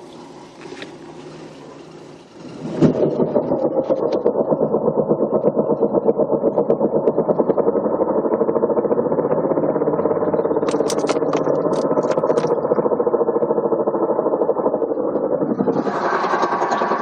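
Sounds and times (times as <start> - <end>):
sharp clicks: 10.6 - 12.7.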